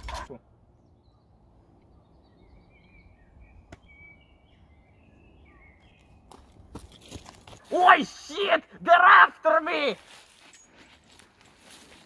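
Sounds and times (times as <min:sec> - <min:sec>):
small birds chirping and warbling: 0:00.0 - 0:07.0.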